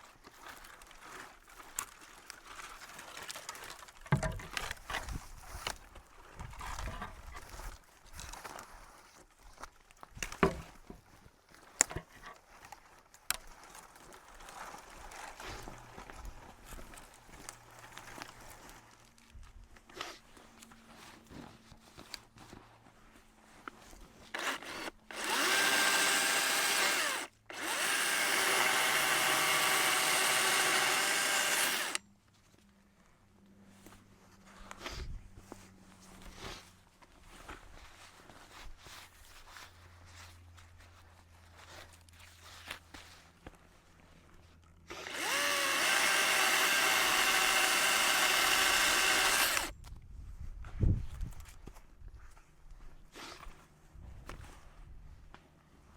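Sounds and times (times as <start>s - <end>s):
electric chainsaw cutting: 10.4s - 10.6s, 11.8s - 12.2s, 24.3s - 32.0s, 44.9s - 49.7s.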